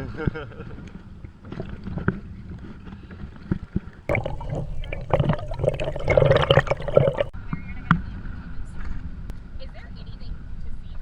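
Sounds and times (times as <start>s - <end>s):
small splashes and knocks: 4.1s - 7.3s
water sloshing and gurgling: 4.1s - 7.3s.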